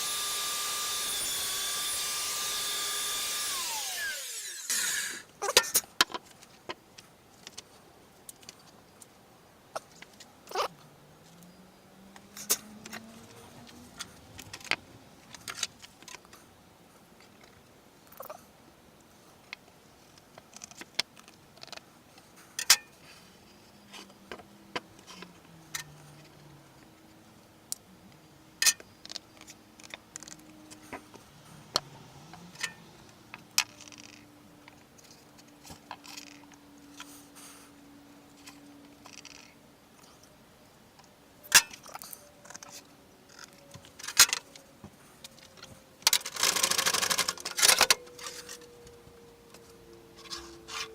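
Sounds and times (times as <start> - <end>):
tools and wood clicking on workbench: 12.1 - 16.4, 28.6 - 37.1, 45.2 - 50.9.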